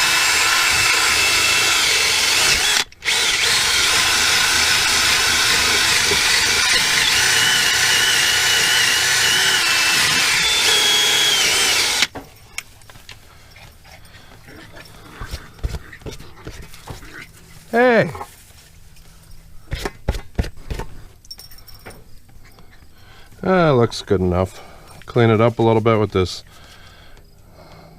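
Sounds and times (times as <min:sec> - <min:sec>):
power buffer on rubber: 0:00.0 - 0:12.1.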